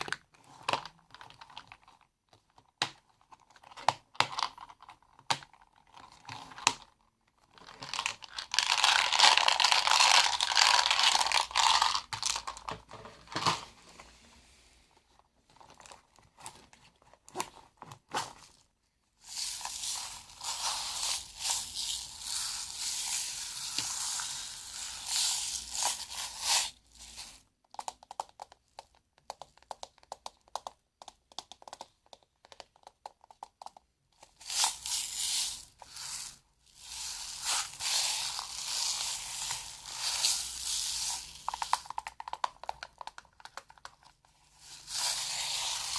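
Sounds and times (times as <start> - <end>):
small objects crinkling and rattling: 0.0 - 13.7, 15.4 - 45.9.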